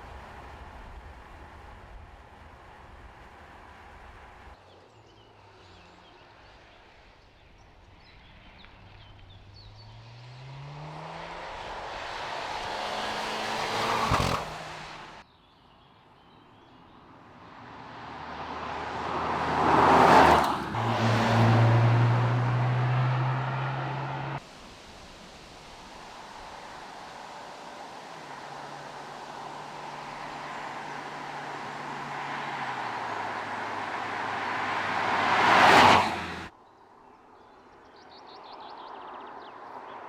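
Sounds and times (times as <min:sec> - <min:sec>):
car passing by: 0:08.0 - 0:15.2, 0:17.4 - 0:36.5
car engine accelerating: 0:08.7 - 0:15.2, 0:17.8 - 0:24.4, 0:25.3 - 0:36.5.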